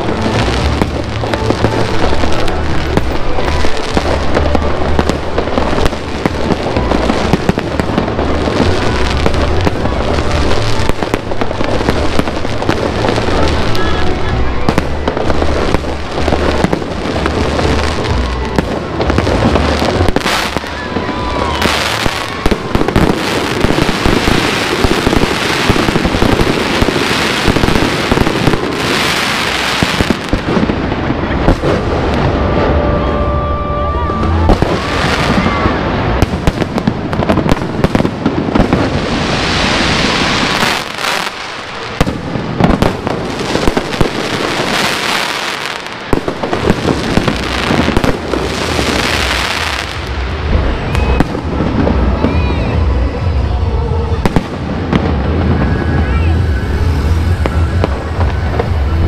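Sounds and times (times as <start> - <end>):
fireworks bangs and crackling: 0.0 - 59.0
whistling firework shells: 50.6 - 52.8.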